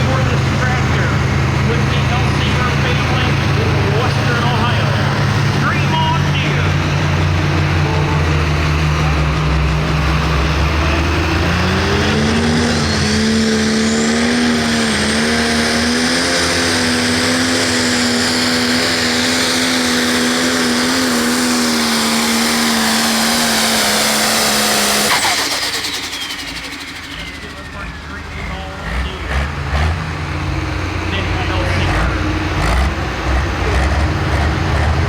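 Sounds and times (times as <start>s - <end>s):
diesel engine under full load: 0.0s - 35.0s
high whine: 0.2s - 15.2s.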